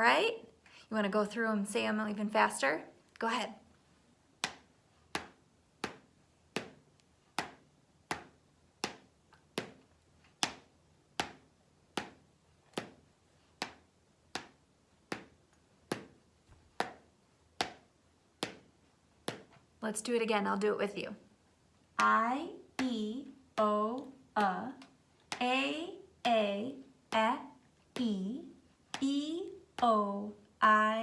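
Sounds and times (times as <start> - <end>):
person speaking: 0.0 - 3.6, 19.8 - 21.2, 22.0 - 31.0.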